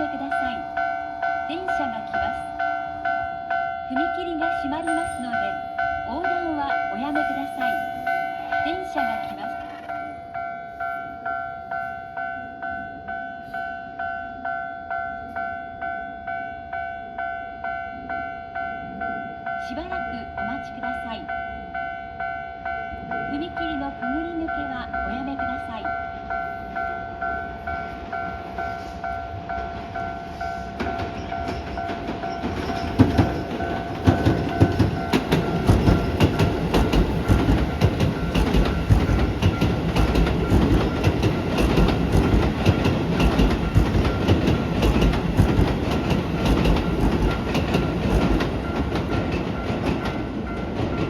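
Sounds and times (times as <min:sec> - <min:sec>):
crossing warning bell ringing: 0:00.0 - 0:51.0
train wheels clattering: 0:27.3 - 0:51.0.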